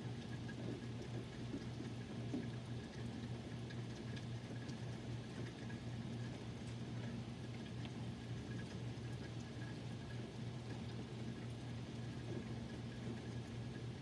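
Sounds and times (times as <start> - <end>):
faint dripping: 0.0 - 14.0
low steady hum: 0.0 - 14.0.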